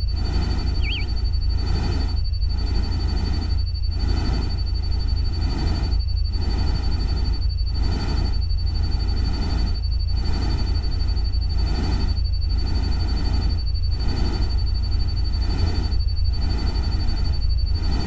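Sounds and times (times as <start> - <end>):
thin high tone: 0.8 - 1.1.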